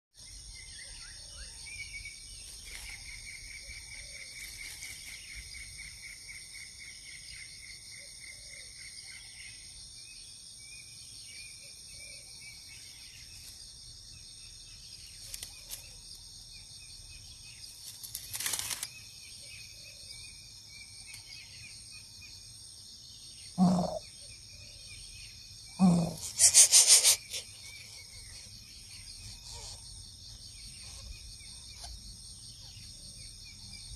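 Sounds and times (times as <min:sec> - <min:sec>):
insects droning: 0:00.2 - 0:33.9
small birds trilling: 0:11.2 - 0:33.9
deep bird hoots: 0:23.6 - 0:24.1, 0:25.8 - 0:26.9.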